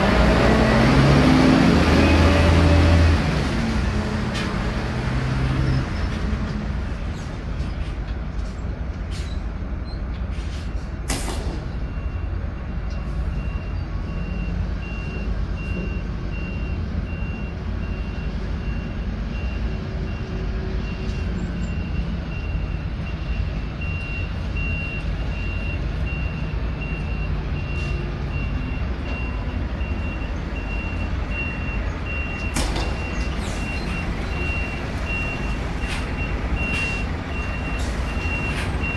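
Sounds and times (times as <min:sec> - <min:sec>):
diesel truck engine running: 0:00.0 - 0:09.0, 0:10.9 - 0:38.9
sharp bang: 0:11.1 - 0:12.0, 0:32.5 - 0:33.4
reversing alarm beeping: 0:11.7 - 0:38.9.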